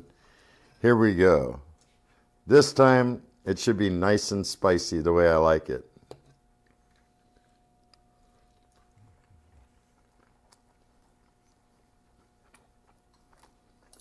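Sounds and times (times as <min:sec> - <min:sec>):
person chewing with mouth clicks: 0:06.6 - 0:14.0.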